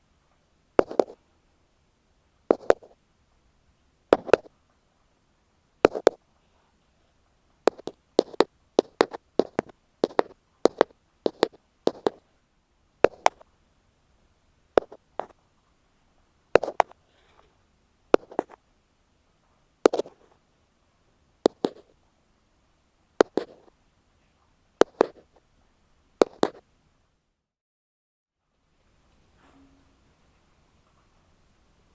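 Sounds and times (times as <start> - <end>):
ear pick tapping microphone: 0.8 - 1.2, 2.5 - 3.0, 4.1 - 4.5, 5.8 - 6.2, 7.7 - 12.2, 13.0 - 13.4, 14.8 - 15.4, 16.6 - 17.0, 18.2 - 18.6, 19.9 - 20.3, 21.4 - 21.9, 23.2 - 23.7, 24.8 - 25.4, 26.2 - 26.6.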